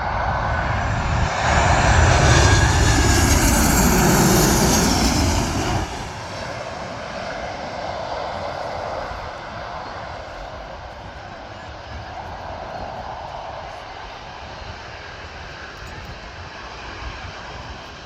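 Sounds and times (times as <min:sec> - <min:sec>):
jet engine whine falling in pitch: 0:00.0 - 0:10.6
jet engines running loud: 0:00.0 - 0:18.0.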